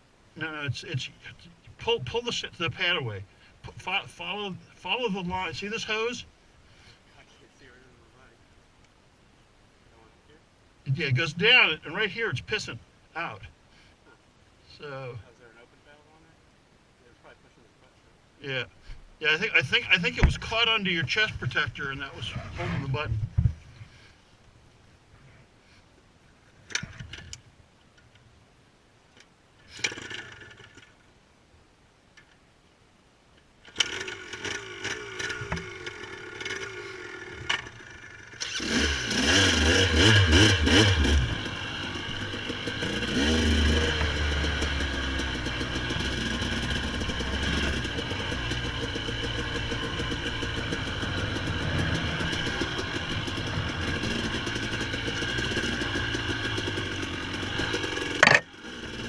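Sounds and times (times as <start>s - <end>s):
dirt bike engine: 19.2s - 23.5s, 29.7s - 30.9s, 33.6s - 59.0s.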